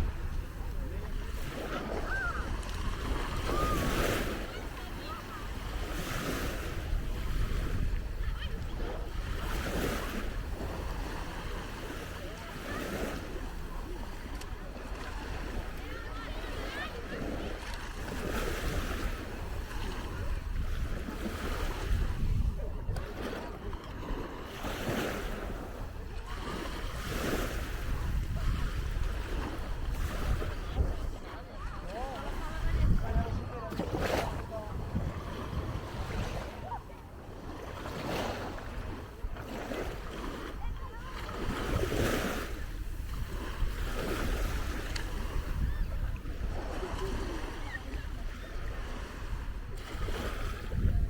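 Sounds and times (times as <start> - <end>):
sea waves washing onto beach: 0.0 - 51.0
wind buffeting microphone: 0.0 - 51.0.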